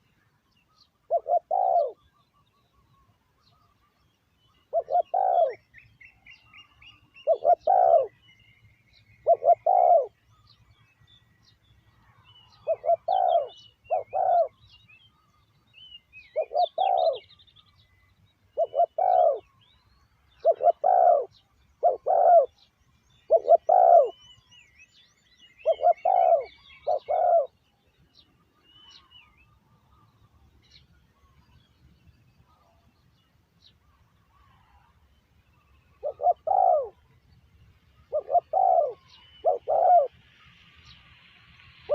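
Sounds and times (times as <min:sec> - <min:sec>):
small birds chirping: 0:00.0 - 0:41.9
dove cooing: 0:01.1 - 0:02.1, 0:04.7 - 0:05.6, 0:07.2 - 0:08.2, 0:09.2 - 0:10.2, 0:12.6 - 0:14.6, 0:16.3 - 0:17.3, 0:18.6 - 0:19.5, 0:20.4 - 0:22.6, 0:23.3 - 0:24.2, 0:25.6 - 0:27.6, 0:35.9 - 0:37.0, 0:38.0 - 0:40.1.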